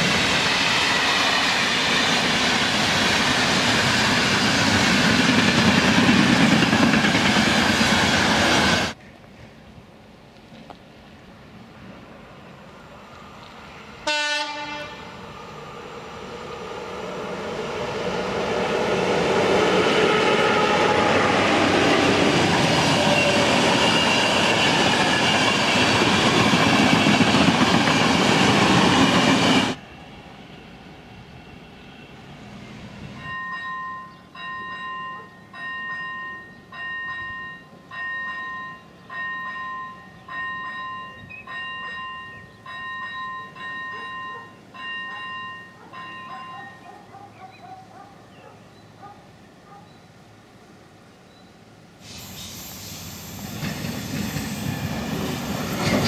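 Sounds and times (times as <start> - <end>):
passenger train passing: 0.0 - 56.0
locomotive horn blast: 14.0 - 15.2
two-tone crossing bell ringing: 33.2 - 46.9.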